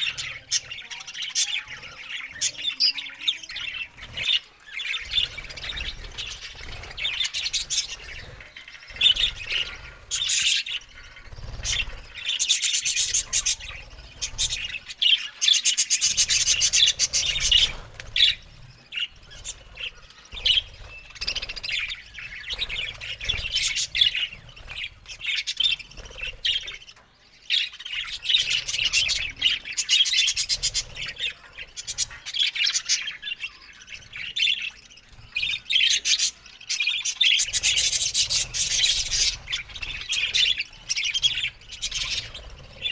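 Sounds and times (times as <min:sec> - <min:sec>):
budgerigars chattering: 0:00.0 - 0:42.9.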